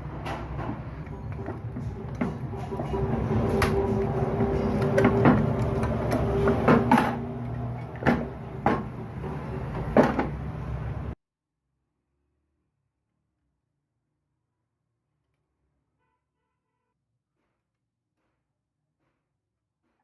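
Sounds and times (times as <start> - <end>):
machine hum: 0.0 - 11.2
sharp knocks and clicks: 0.2 - 10.6.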